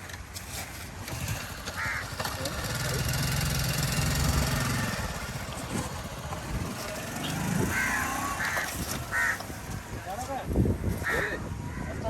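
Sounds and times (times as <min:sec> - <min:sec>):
small engine humming: 0:01.1 - 0:09.3
crows cawing: 0:01.7 - 0:02.4, 0:07.6 - 0:09.6, 0:10.8 - 0:12.0.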